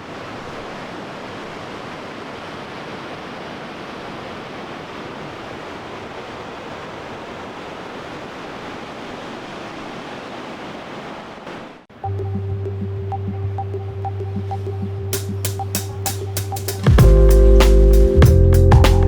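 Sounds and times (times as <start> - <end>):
fast river rushing: 0.0 - 11.8.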